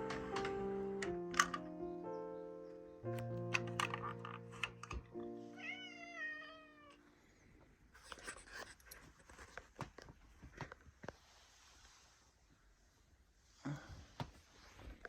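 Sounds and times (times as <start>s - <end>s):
music with held chords: 0.0s - 5.7s
cat meowing: 5.5s - 7.0s.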